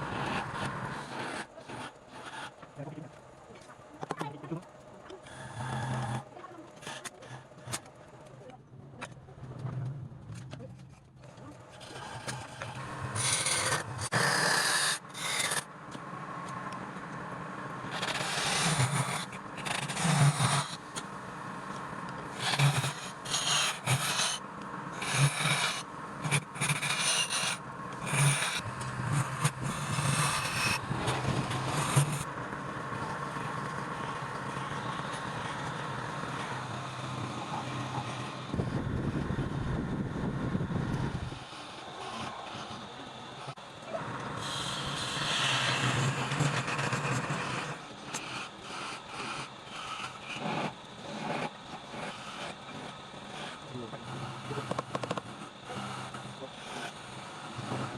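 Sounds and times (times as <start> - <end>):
turning tool scraping wood: 11.8 - 15.6, 17.9 - 21.1, 22.4 - 24.4, 25.0 - 32.3, 44.4 - 55.3
wood lathe running: 11.9 - 15.6, 17.8 - 38.6, 44.1 - 53.9.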